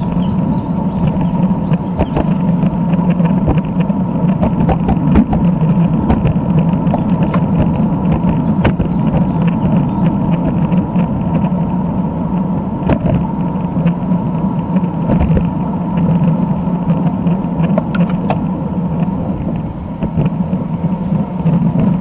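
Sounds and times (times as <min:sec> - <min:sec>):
faint steady whine: 0:00.0 - 0:22.0
vehicle rumbling along a road: 0:00.0 - 0:22.0.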